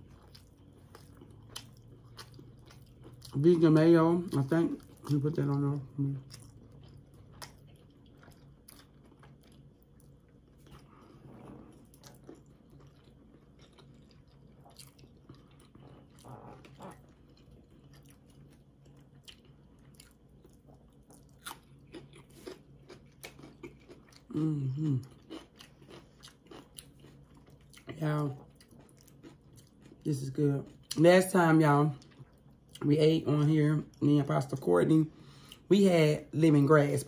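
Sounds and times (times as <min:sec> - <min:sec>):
crunchy biting and chewing: 0:06.2 - 0:30.0
person humming mm: 0:24.3 - 0:25.1.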